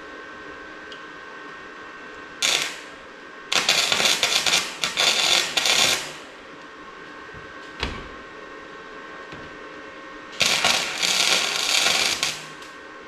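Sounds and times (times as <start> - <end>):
arc welding crackle: 2.4 - 6.4, 10.4 - 12.8.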